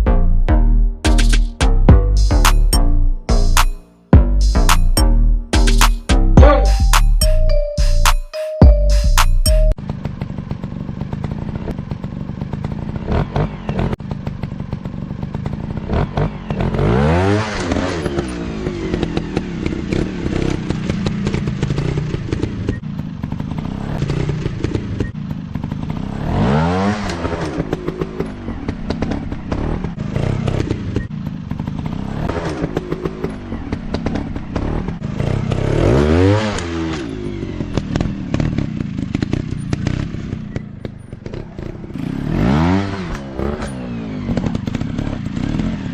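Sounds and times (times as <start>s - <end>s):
dirt bike engine revving: 9.8s - 45.9s.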